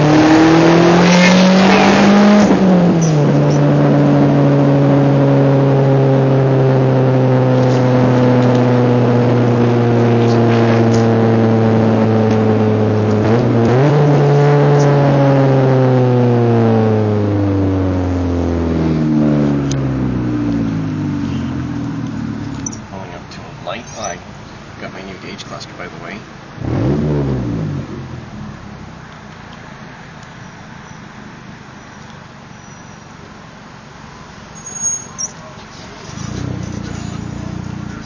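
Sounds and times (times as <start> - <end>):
loud droning car exhaust: 0.0 - 24.9, 34.0 - 38.0.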